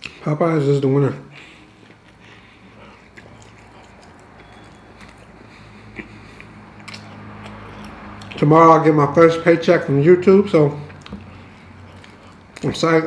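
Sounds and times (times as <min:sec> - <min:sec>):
person chewing sandwich: 0:01.3 - 0:08.5, 0:10.6 - 0:13.0
soft mouth clicks: 0:02.8 - 0:08.4.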